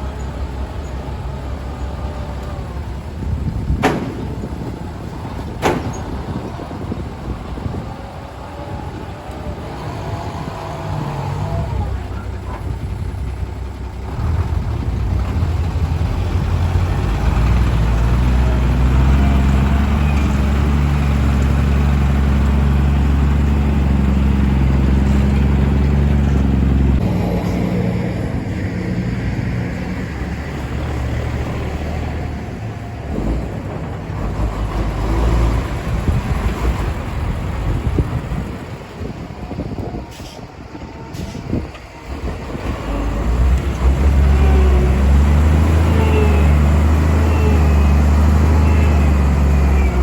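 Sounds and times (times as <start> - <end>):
dump truck diesel engine running: 0.0 - 50.0.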